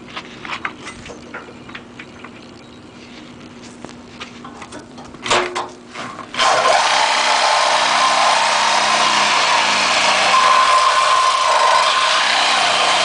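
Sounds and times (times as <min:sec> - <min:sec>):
power tool running with high hiss: 0:06.4 - 0:13.0.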